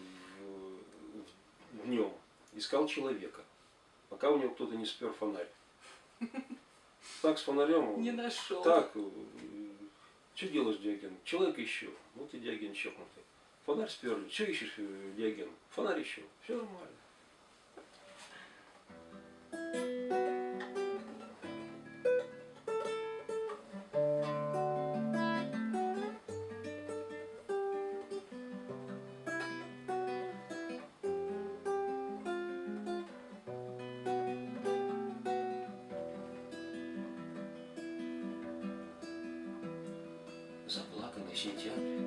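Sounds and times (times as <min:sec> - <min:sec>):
acoustic guitar picking: 0:00.0 - 0:00.4, 0:18.9 - 0:42.0.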